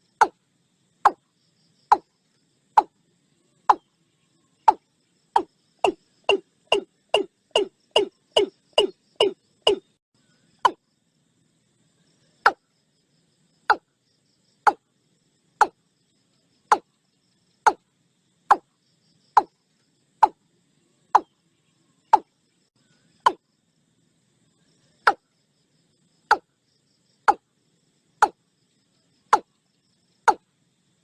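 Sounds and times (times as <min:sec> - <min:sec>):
bird calling sharp notes: 0:05.4 - 0:09.9.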